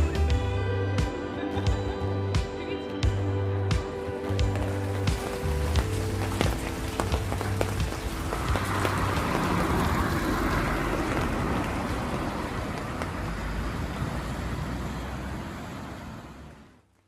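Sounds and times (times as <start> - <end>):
traffic: 0.0 - 17.0
rain falling: 4.2 - 14.4
tyres hissing on wet road: 4.2 - 16.8.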